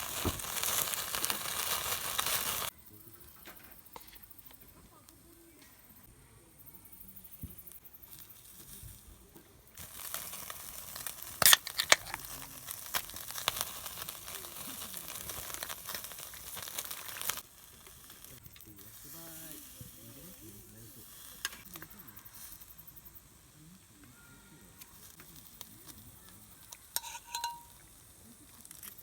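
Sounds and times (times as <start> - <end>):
loud pops: 0.0 - 2.7
food sizzling in a pan: 0.0 - 29.0.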